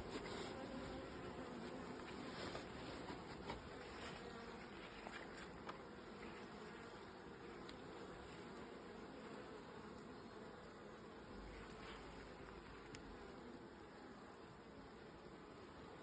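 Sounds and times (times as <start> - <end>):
honeybees buzzing: 0.0 - 16.0
faint clicks: 12.4 - 13.1.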